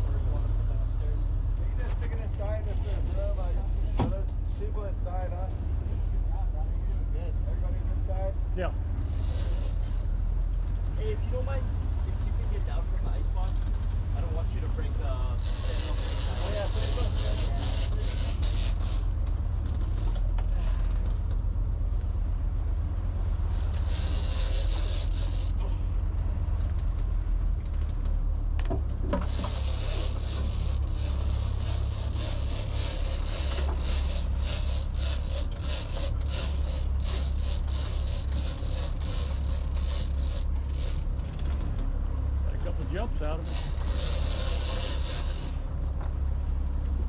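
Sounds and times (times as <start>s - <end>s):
boat engine drone: 0.0s - 47.0s
wind and water hiss: 29.1s - 41.2s, 42.2s - 45.8s.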